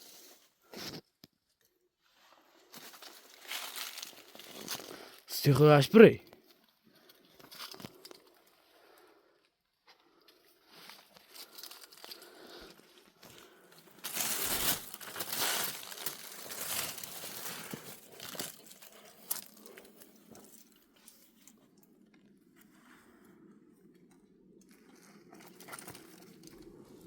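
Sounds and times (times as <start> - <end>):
crunching and rustling: 2.7 - 5.2, 10.7 - 21.5.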